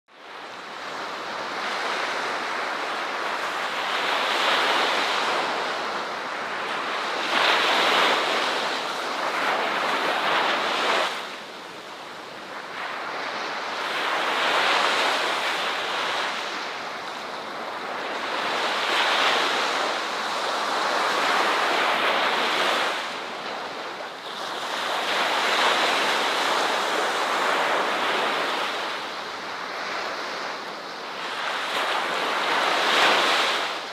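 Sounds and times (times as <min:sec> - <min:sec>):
ocean surf breaking on shore: 0:00.2 - 0:33.9.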